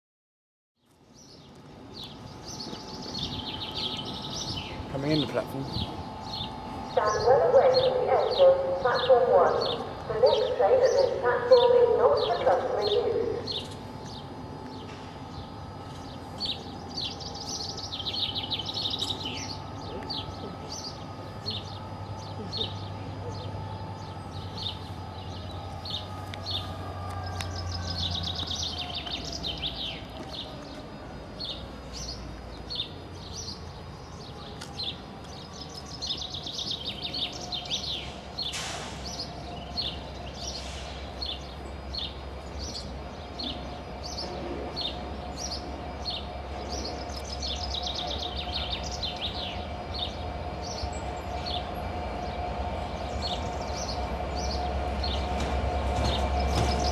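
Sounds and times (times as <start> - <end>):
small birds chirping: 0.8 - 26.7, 27.3 - 30.8, 31.4 - 56.9
train rumbling: 1.0 - 56.9.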